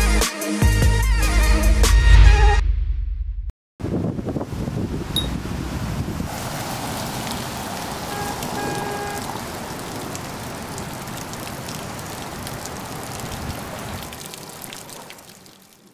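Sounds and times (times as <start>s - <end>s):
rain on pavement and umbrella: 5.3s - 15.9s.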